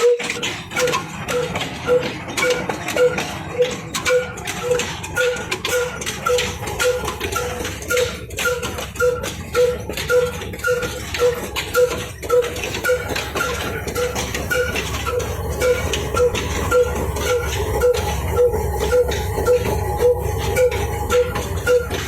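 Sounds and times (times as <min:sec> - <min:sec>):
machine clicks and clanks: 0:00.0 - 0:22.0
single-cylinder diesel engine beat: 0:00.0 - 0:22.0.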